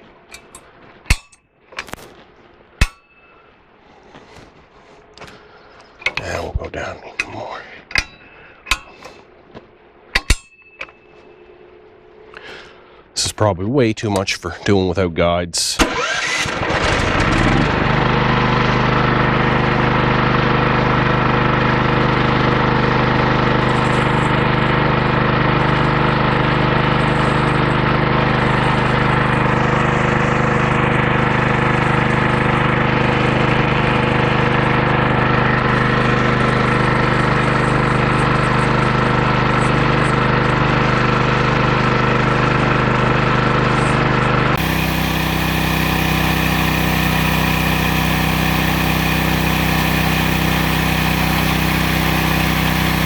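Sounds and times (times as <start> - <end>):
sawmill engine running: 12.4 - 40.4, 43.4 - 53.0.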